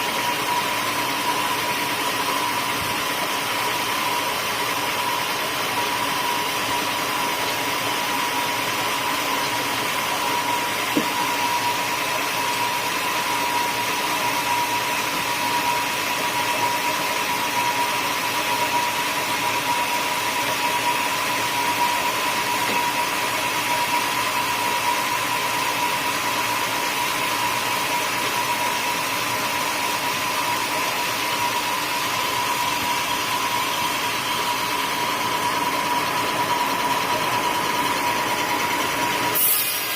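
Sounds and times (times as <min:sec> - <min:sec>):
sawmill saw whining: 0:00.0 - 0:39.9.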